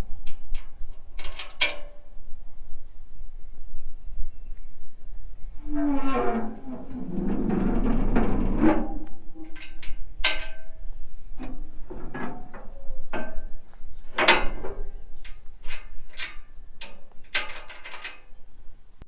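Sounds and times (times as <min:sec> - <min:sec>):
metallic clicks and clanks: 0:00.2 - 0:02.0, 0:07.4 - 0:10.8, 0:11.4 - 0:18.4.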